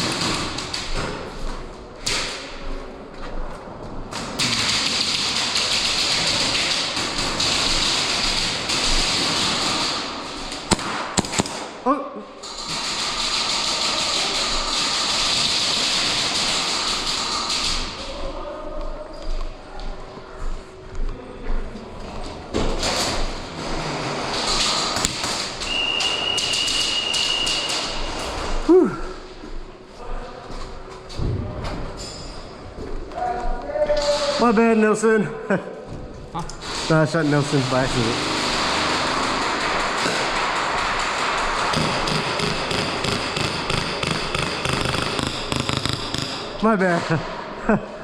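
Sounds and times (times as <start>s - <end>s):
airsoft guns firing: 0.0s - 1.2s, 4.2s - 11.8s, 12.6s - 17.9s, 38.1s - 46.6s
pellet impacts: 10.6s - 11.8s, 39.5s - 46.7s.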